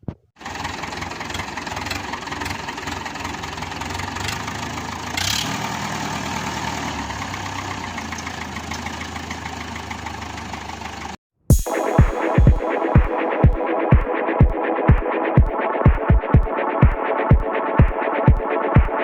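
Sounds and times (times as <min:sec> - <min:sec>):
tractor engine idling: 0:00.4 - 0:05.3, 0:06.8 - 0:11.2.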